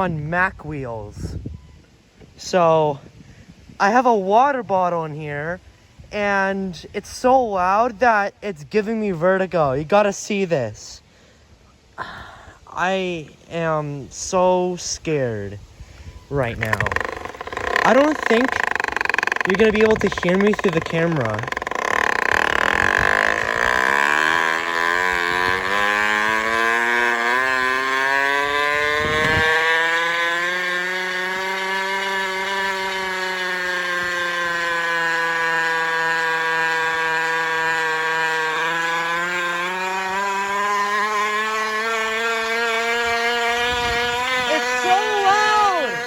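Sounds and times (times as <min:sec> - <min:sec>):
bottle rattling against bike wheel: 0:16.5 - 0:24.3.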